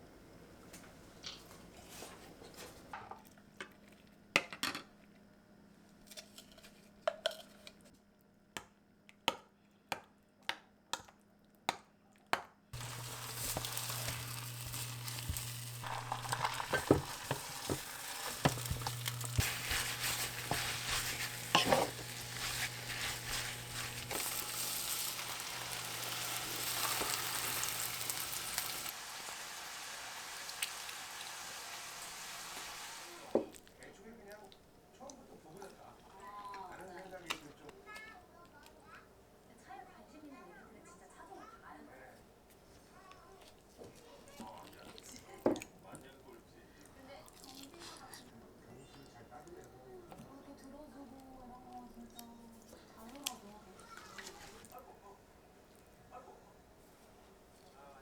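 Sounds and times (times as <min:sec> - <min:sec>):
utensil clinking while stirring: 0:12.8 - 0:28.8
food sizzling in a frying pan: 0:12.8 - 0:33.6.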